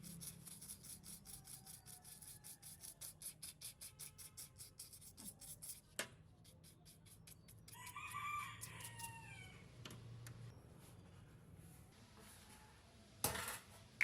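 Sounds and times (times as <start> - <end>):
rooster crowing: 1.4 - 3.0, 7.7 - 9.7.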